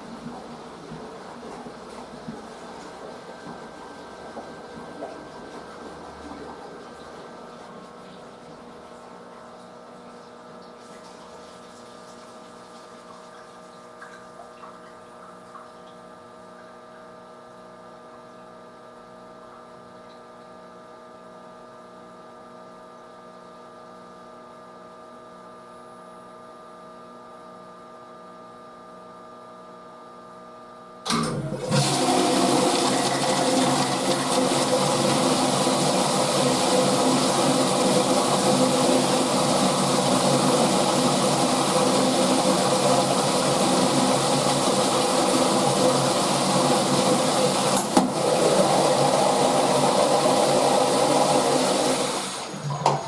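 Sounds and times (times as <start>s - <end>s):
washing machine humming: 0.0s - 26.3s, 30.4s - 53.0s.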